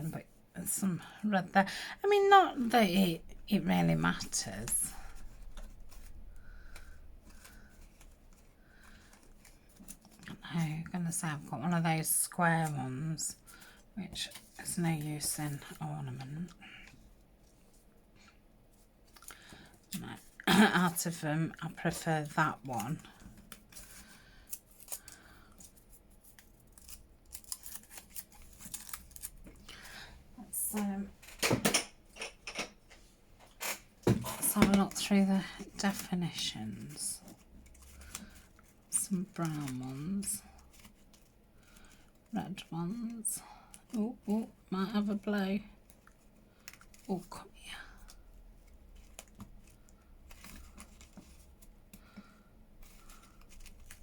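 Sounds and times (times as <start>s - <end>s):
paper rustling and clicking: 21.9s - 30.0s, 34.4s - 42.3s, 45.8s - 47.3s, 48.0s - 54.0s.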